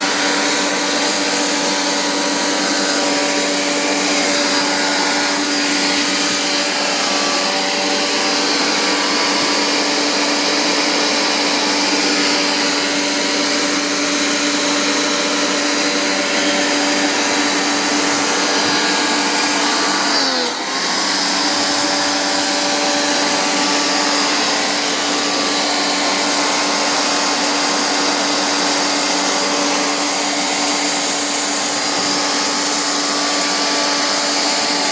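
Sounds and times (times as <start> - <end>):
electric motor humming and whining: 0.0 - 34.9.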